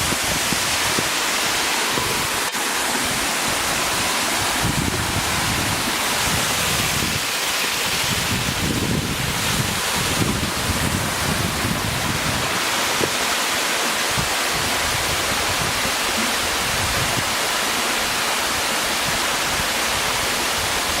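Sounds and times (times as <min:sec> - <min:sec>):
waterfall rushing and splashing: 0:00.0 - 0:21.0
wind buffeting microphone: 0:03.4 - 0:13.2.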